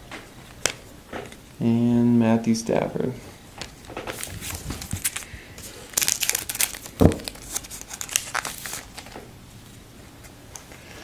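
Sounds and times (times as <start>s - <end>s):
plastic wrapper tearing and crinkling: 4.0s - 9.2s.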